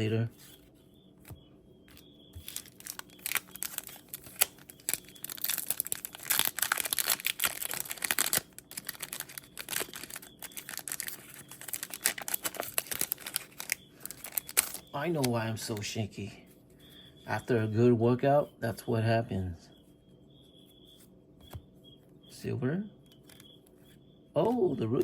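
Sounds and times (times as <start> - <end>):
foil wrapper crinkling and tearing: 2.4 - 15.3.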